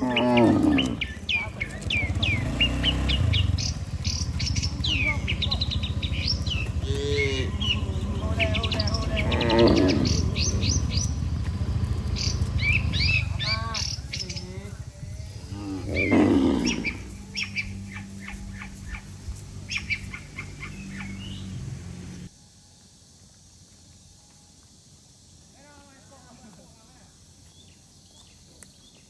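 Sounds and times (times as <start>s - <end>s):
cattle mooing: 0.0s - 22.3s
low rumble: 0.0s - 22.3s
small birds chirping: 0.0s - 22.3s, 23.6s - 29.0s.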